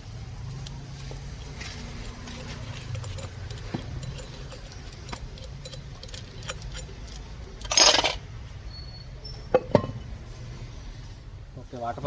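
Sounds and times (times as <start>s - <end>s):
metal tools clinking: 1.7s - 8.2s.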